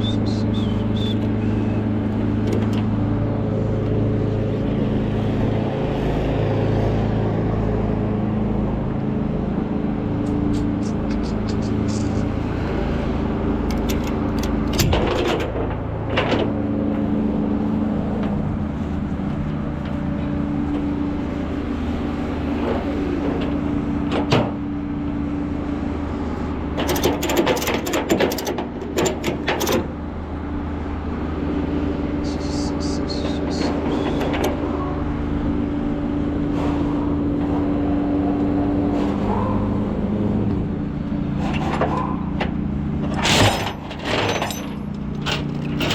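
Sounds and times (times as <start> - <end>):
truck engine and road noise: 0.0 - 45.9
clicks and rattles: 2.1 - 3.0, 13.6 - 16.6, 26.7 - 29.9, 33.6 - 34.7, 41.4 - 45.9.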